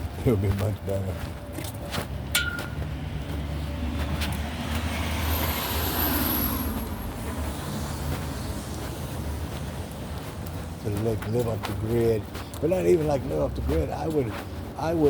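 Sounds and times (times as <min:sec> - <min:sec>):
vehicle passing on wet road: 0:02.8 - 0:10.9.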